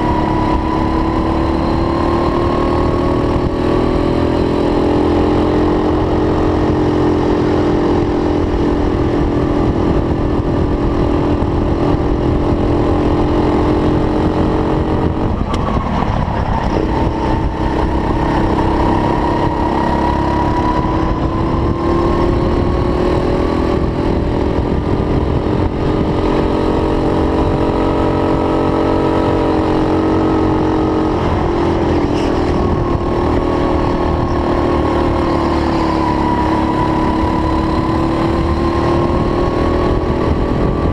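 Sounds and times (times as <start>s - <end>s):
go-kart engine running hard: 0.0s - 40.9s
steady low rumble: 8.6s - 27.8s, 30.9s - 35.7s.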